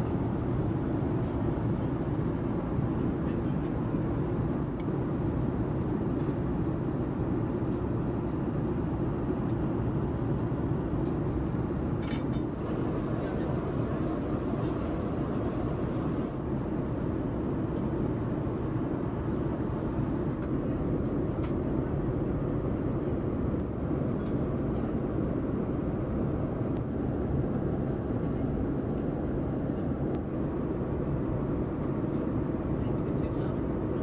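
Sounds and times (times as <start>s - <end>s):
airliner cabin engine rush: 10.5s - 34.0s.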